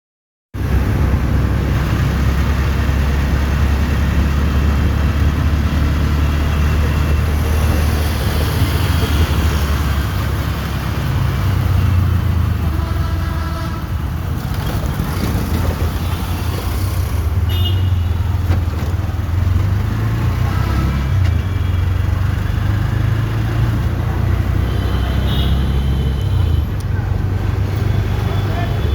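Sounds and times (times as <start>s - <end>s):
road traffic rumble: 0.6s - 28.9s.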